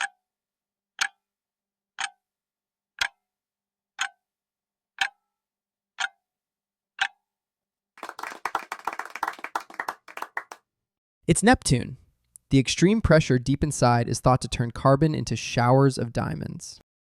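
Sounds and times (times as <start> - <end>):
clock ticking: 0.0 - 0.2, 1.0 - 1.3, 2.0 - 2.2, 3.0 - 3.2, 4.0 - 4.2, 5.0 - 5.2, 6.0 - 6.2, 7.0 - 7.2
applause: 8.0 - 10.6.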